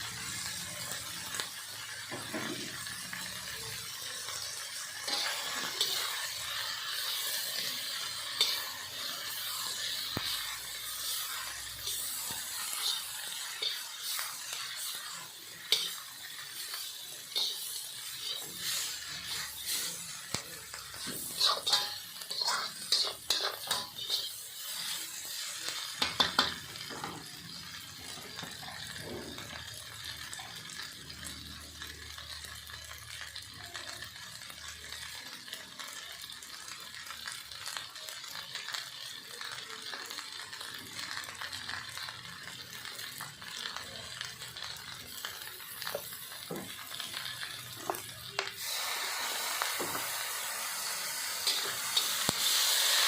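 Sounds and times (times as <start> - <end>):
food sizzling in a pan: 0.0 - 53.0
utensil clinking and scraping pan: 5.0 - 25.3
loud hiss: 48.6 - 50.4.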